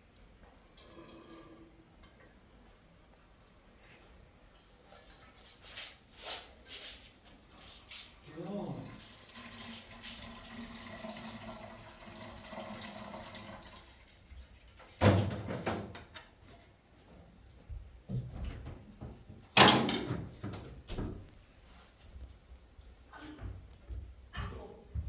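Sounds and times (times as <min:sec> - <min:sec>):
water running: 0:03.8 - 0:15.2.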